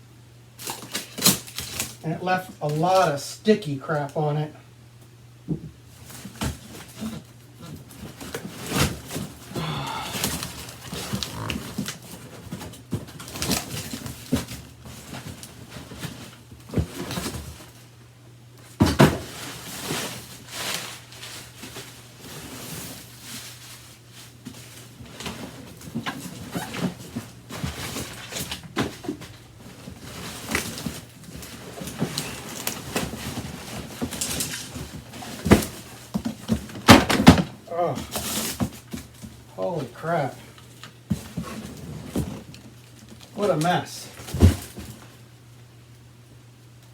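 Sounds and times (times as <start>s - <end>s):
packing material rustling and crinkling: 0.6s - 3.6s, 5.9s - 17.9s, 19.2s - 37.3s.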